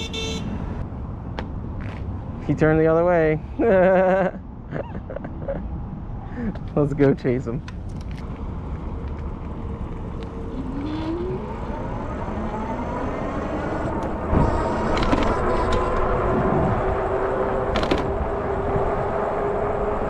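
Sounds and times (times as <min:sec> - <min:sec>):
wind and road noise: 0:00.0 - 0:20.0
electric bike motor whining: 0:09.6 - 0:19.1.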